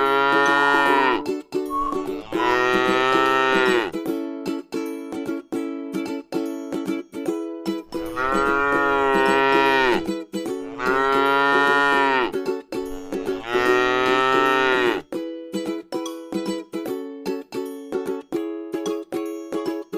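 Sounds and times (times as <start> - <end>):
cow mooing: 0.0 - 1.2, 2.2 - 3.9, 8.0 - 12.3, 13.0 - 15.0
plucked-string background music: 0.0 - 19.9.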